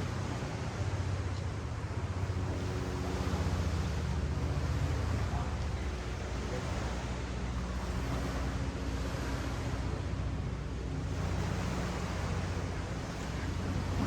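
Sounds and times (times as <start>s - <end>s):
ocean waves washing up beach: 0.0s - 14.0s.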